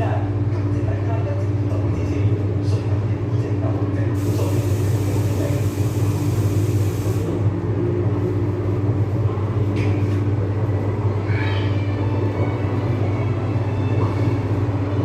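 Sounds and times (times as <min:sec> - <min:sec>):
high hiss: 0:04.2 - 0:07.3.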